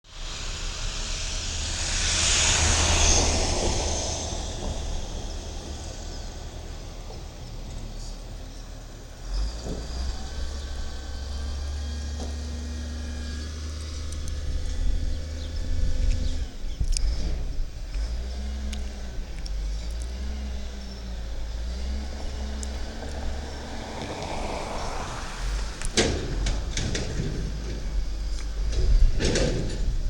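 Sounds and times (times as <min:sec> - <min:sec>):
loud rushing hiss: 0:00.0 - 0:08.3, 0:21.2 - 0:28.7
garbage truck diesel engine rumble: 0:00.0 - 0:30.0.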